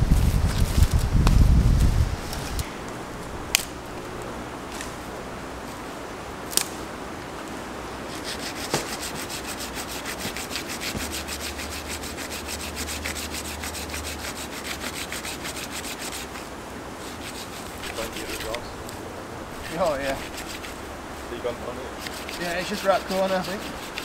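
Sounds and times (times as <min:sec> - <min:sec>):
saw cutting through wood: 0:08.1 - 0:16.4, 0:17.0 - 0:18.7, 0:19.6 - 0:20.8, 0:21.4 - 0:24.0.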